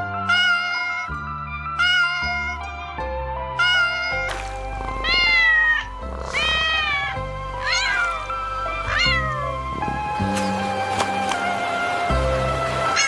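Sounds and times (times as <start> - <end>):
background music: 0.0 - 13.0
cat meowing: 0.2 - 1.2, 1.8 - 2.7, 3.6 - 9.6.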